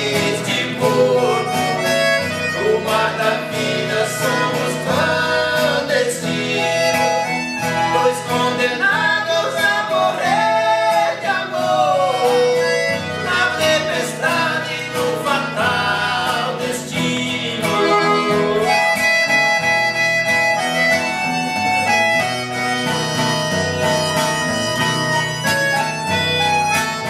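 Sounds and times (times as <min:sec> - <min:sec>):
voices singing: 0:00.0 - 0:20.0, 0:25.2 - 0:27.0
instrumental accompaniment: 0:00.0 - 0:27.0
reed instrument melody: 0:06.4 - 0:08.6, 0:17.7 - 0:27.0.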